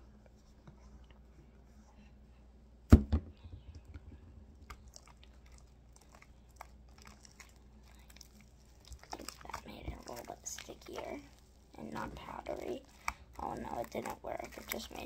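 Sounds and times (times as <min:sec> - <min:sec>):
sharp thump: 0:02.9 - 0:03.8
sticky clicks and squishes of slime: 0:04.6 - 0:15.0.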